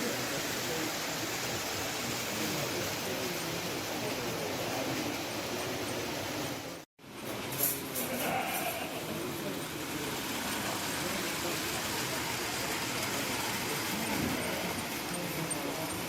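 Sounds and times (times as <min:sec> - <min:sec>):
faint murmuring voices: 0:00.0 - 0:16.0
model train whirring on track: 0:00.0 - 0:16.0.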